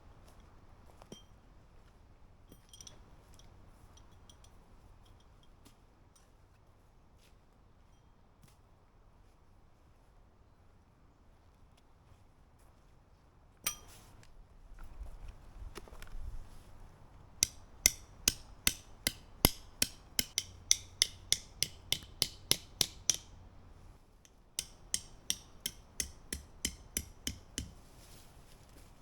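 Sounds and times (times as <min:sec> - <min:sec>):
sharp metallic taps: 0:17.4 - 0:27.9.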